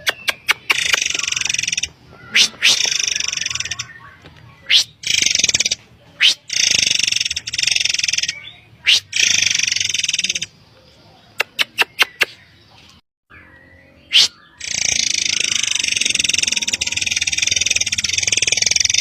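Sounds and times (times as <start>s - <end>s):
bird sharp ticks: 0.0s - 3.9s, 11.4s - 12.4s
high buzzing bird trill: 0.0s - 10.6s, 13.3s - 19.0s.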